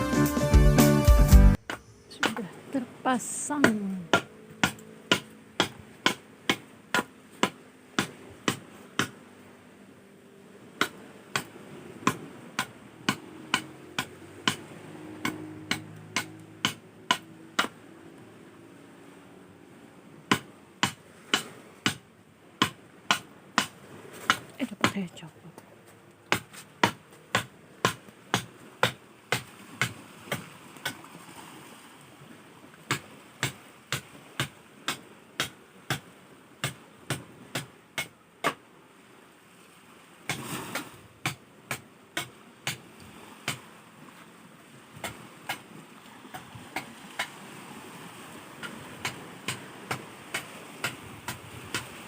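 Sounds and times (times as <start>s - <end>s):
hand tool knocking on boat: 3.6s - 9.2s, 10.8s - 17.8s, 20.3s - 25.3s, 26.3s - 31.0s, 48.6s - 51.9s.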